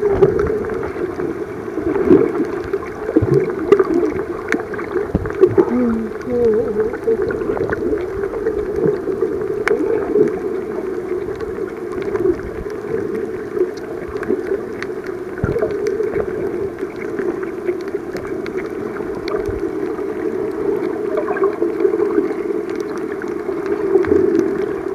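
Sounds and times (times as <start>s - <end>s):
muffled underwater rush: 0.0s - 24.9s
small clicks and crackles: 0.0s - 24.9s.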